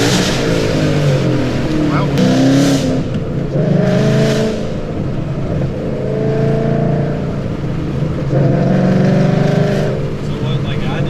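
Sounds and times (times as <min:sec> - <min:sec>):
car engine revving under load: 0:00.0 - 0:11.0.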